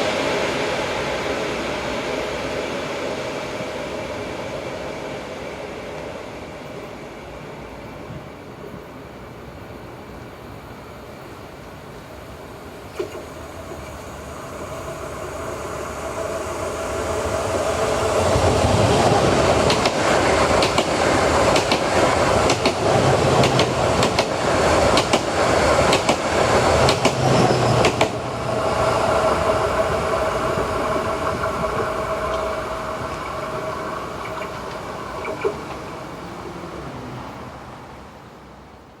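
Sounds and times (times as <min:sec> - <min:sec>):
train passing: 0:00.0 - 0:39.0
train wheels clattering over rail joints: 0:19.1 - 0:28.3.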